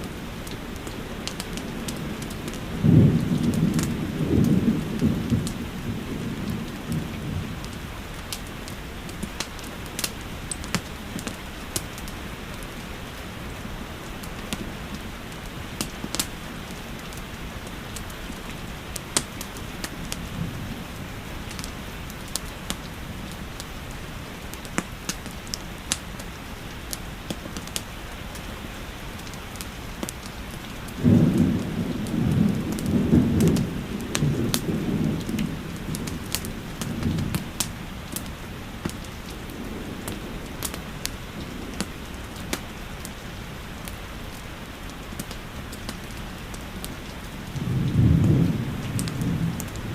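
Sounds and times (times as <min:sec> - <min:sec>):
steady rainfall: 0:00.0 - 0:49.9
wood fire crackling: 0:00.0 - 0:49.9
thunder rumbling: 0:00.1 - 0:11.3, 0:17.6 - 0:23.3, 0:30.8 - 0:43.1, 0:46.8 - 0:49.9.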